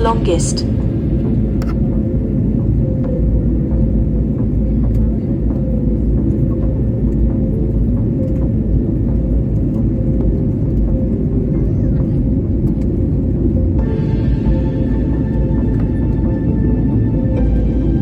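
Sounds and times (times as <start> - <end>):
airliner engines droning in cabin: 0.0 - 18.0.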